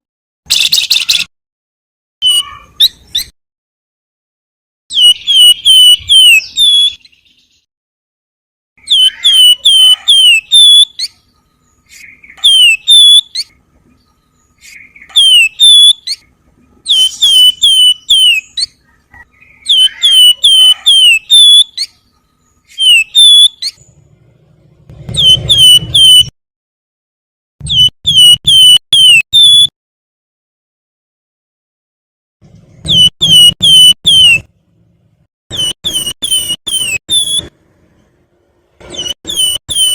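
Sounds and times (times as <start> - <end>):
bird whistling song: 0.5 - 1.3, 2.2 - 3.4, 4.9 - 7.7, 8.8 - 24.0, 25.0 - 26.3, 27.6 - 29.7, 32.8 - 34.5, 35.5 - 37.5, 38.9 - 39.9.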